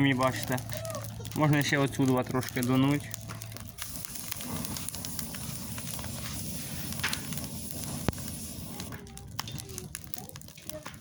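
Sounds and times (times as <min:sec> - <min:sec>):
campfire crackling: 0:00.0 - 0:11.0
compressed air rushing: 0:03.8 - 0:08.9.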